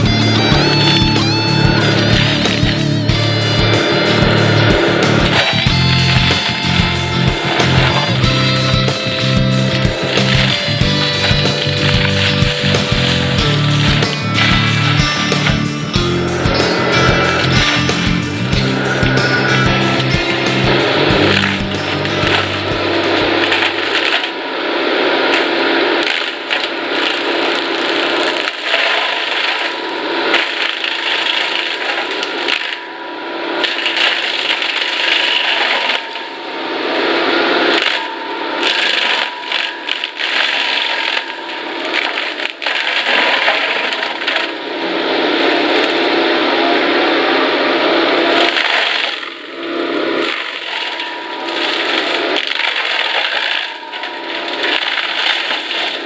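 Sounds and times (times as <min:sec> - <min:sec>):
mulcher shredding wood: 0:00.0 - 0:24.4
high machine whine: 0:00.0 - 0:56.0.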